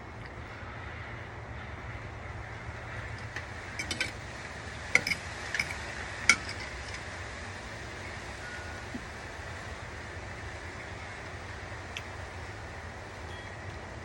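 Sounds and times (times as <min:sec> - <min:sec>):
steady background noise: 0:00.0 - 0:14.0
cutlery clinking against dish: 0:03.2 - 0:04.2, 0:05.0 - 0:07.0.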